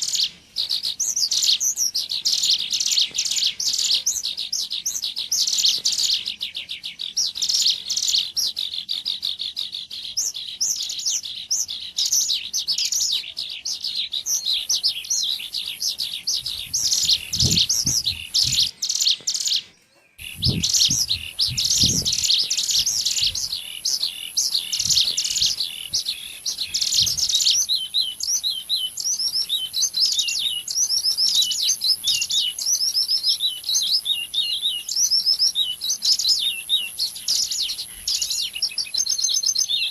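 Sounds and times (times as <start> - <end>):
bird chirping in rapid runs: 0.0 - 39.9
low thumps: 20.2 - 22.3.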